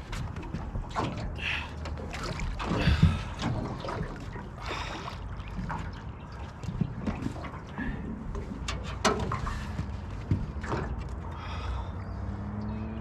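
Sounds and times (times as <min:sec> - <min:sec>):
water splashing against boat: 0:00.0 - 0:12.6
water swishes: 0:00.0 - 0:12.6.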